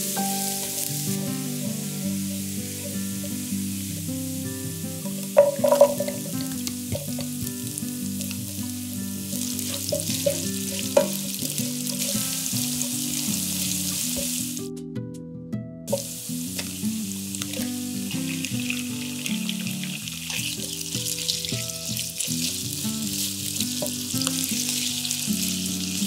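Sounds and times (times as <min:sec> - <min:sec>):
onion sizzling in a frying pan: 0:00.0 - 0:14.6, 0:15.9 - 0:26.0
soft background music: 0:00.0 - 0:26.0
spatula tapping and scraping pan: 0:05.0 - 0:14.5, 0:18.4 - 0:25.2.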